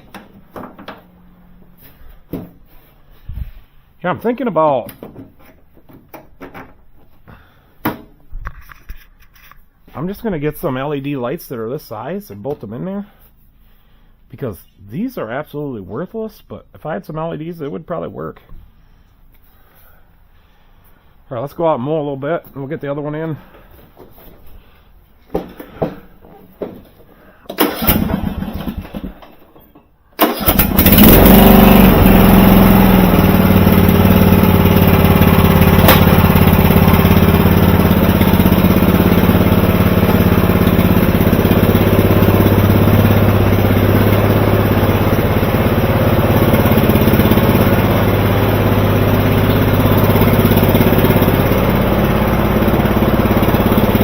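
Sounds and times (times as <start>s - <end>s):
knocks and rustles: 0.0s - 1.2s, 1.8s - 2.9s, 4.8s - 7.2s, 23.6s - 24.6s, 25.2s - 27.6s
riding mower engine running: 26.6s - 29.6s, 30.2s - 54.0s.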